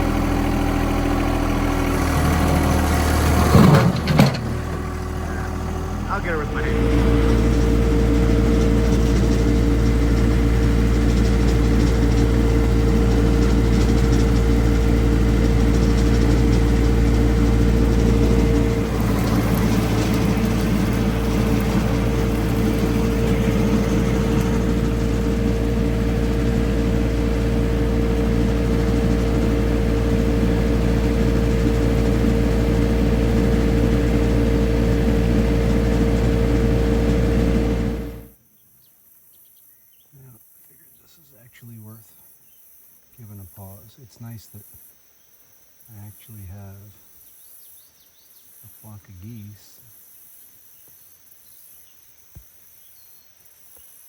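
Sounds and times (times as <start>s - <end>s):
loader engine running: 0.0s - 38.4s.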